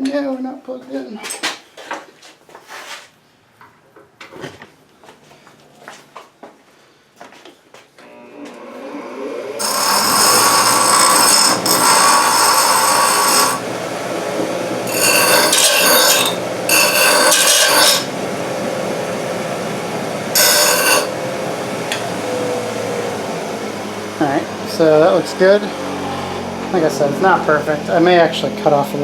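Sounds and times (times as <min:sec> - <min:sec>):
grinder grinding metal: 0:08.0 - 0:29.0
grinder running free: 0:08.0 - 0:29.0.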